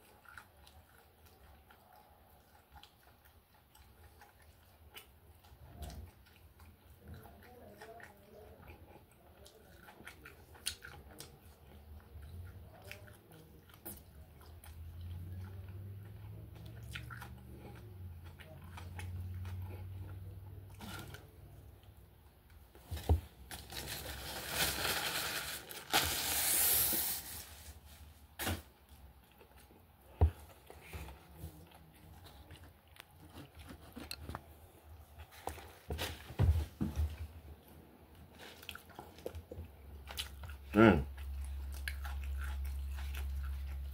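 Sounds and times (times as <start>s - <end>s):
person chewing and biting: 9.4s - 11.4s, 28.8s - 34.7s, 38.3s - 43.9s.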